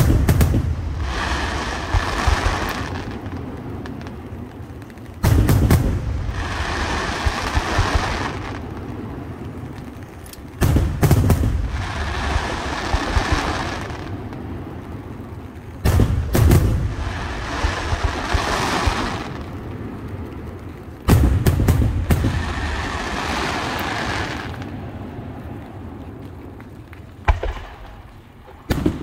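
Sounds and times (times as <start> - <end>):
firework shells booming: 0.0 - 4.1, 5.2 - 8.9, 10.5 - 14.2, 15.8 - 19.5, 21.0 - 24.7, 27.2 - 29.0
firework crackling: 0.0 - 29.0.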